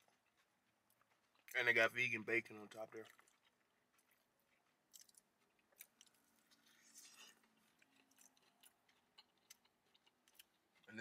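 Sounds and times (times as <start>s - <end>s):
chewing a sandwich: 0.0s - 11.0s.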